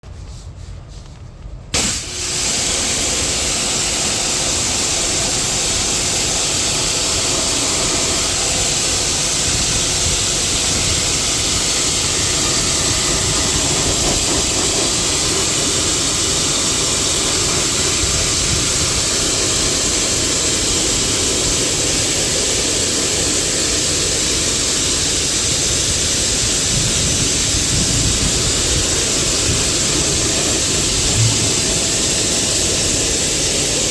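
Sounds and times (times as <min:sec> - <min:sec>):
pressure washer spraying water: 0:01.7 - 0:33.9.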